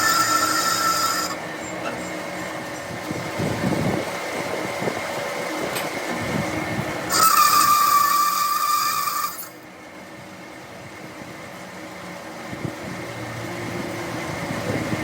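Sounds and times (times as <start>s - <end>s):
power tool whine: 0.0s - 2.6s, 5.6s - 9.6s
scraping on metal parts: 0.0s - 3.0s, 7.1s - 9.6s.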